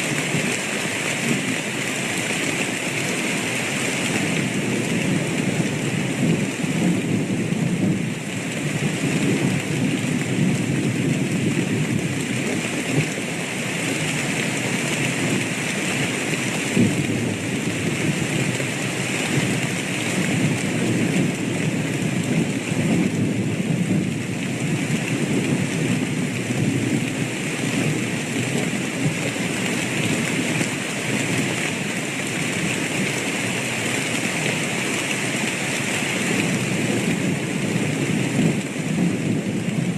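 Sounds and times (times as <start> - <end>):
steady rain: 0.0 - 39.9
low rumble of thunder: 4.2 - 13.2, 14.7 - 33.6, 36.3 - 39.9.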